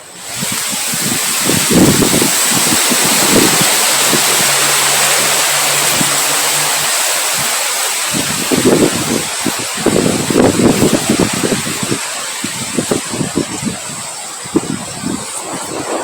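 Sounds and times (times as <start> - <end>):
heavy rain: 0.0 - 16.0
wind gusts rumbling: 0.0 - 16.0.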